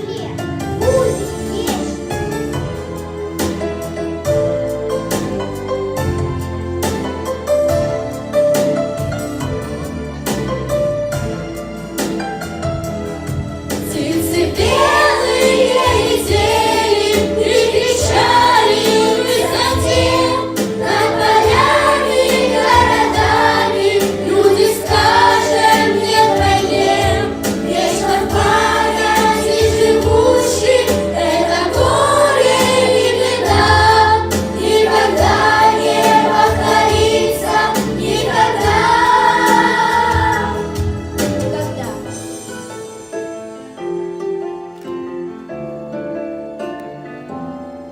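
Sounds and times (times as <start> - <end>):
instrumental accompaniment: 0.0 - 47.9
choir singing: 13.8 - 41.5.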